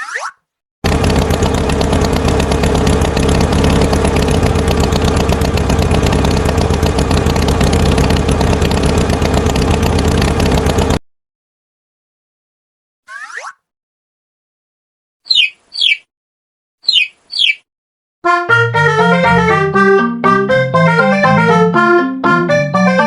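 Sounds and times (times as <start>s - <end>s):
tractor engine clattering: 0.8s - 11.0s.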